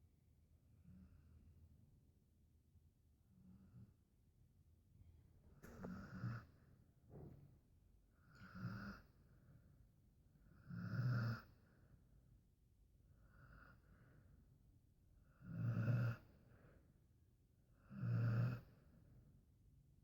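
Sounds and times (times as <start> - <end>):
dog snoring: 5.6 - 6.5, 8.4 - 9.1, 10.6 - 11.5, 15.4 - 16.3, 17.9 - 18.7.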